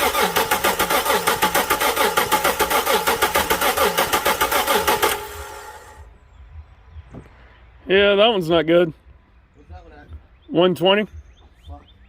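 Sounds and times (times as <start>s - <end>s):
engine starter cranking: 0.0s - 6.0s.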